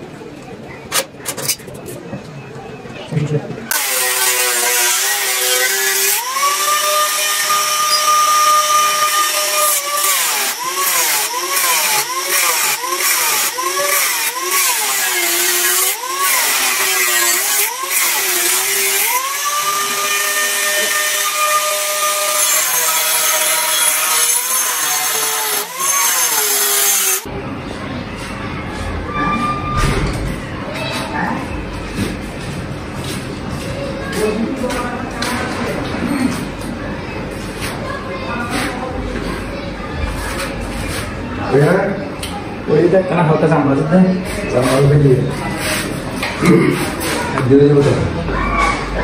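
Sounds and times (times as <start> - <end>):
power tool whining: 3.7 - 27.3.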